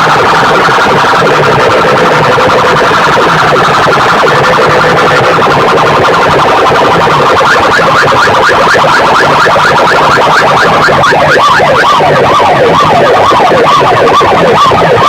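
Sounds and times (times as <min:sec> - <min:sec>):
distorted loud music: 0:00.0 - 0:15.0
siren-like electronic tones: 0:00.0 - 0:15.0.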